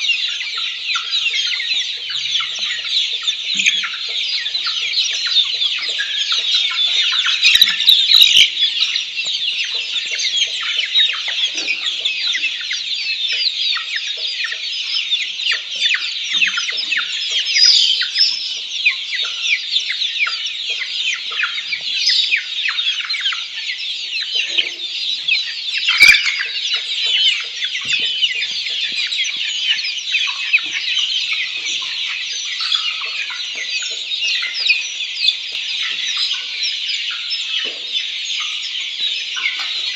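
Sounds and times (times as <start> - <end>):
chickens peeping: 0.0 - 39.9.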